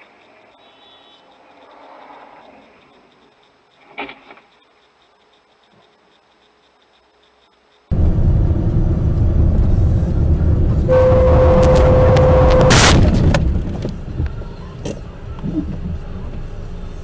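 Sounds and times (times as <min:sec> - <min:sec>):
road and engine rumble in car: 0:07.9 - 0:17.0
loud crash impact: 0:08.0 - 0:13.6
car horn held: 0:10.8 - 0:13.0.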